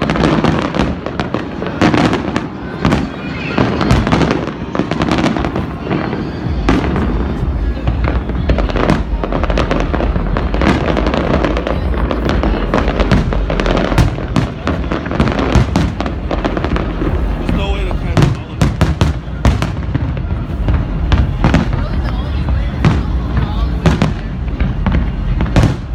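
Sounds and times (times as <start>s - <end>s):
fireworks bursting and crackling: 0.0s - 25.9s
steady low rumble: 5.4s - 25.9s.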